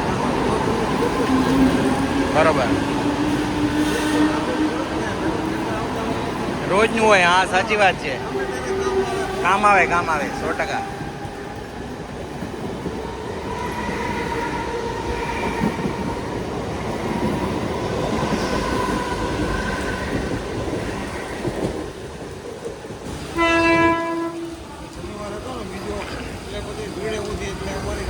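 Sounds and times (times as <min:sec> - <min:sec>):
train rumbling on rails: 0:00.0 - 0:28.0
train horn blast: 0:23.3 - 0:24.8.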